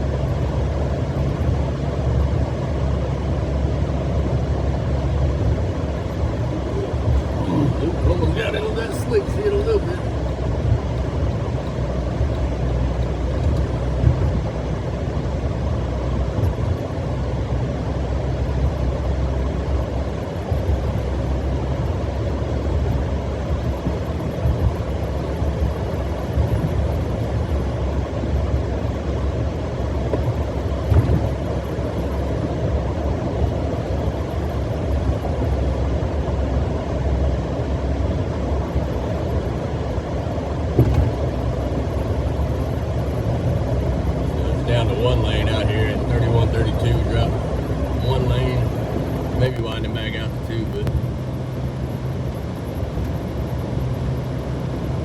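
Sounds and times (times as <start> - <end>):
road and engine noise in car: 0.0 - 55.0
car bumps: 30.1 - 31.4, 40.7 - 41.4.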